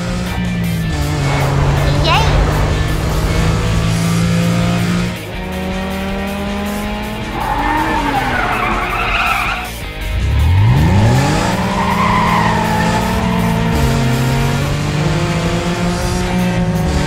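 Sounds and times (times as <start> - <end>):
cartoon car engine revving: 0.0 - 17.0
tyre screech: 7.3 - 9.8, 10.4 - 13.7.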